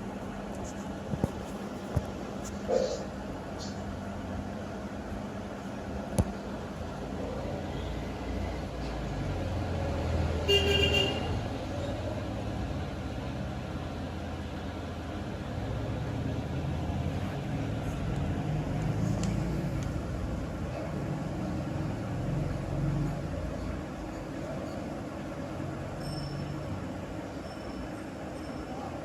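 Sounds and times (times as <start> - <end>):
traffic rumble: 0.0 - 29.0
vehicle horn toot: 10.4 - 11.4.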